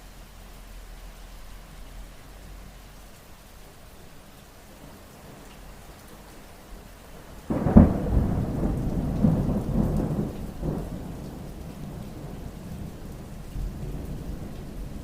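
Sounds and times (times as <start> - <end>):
steady rain: 0.0 - 15.0
thunderclap: 7.5 - 15.0.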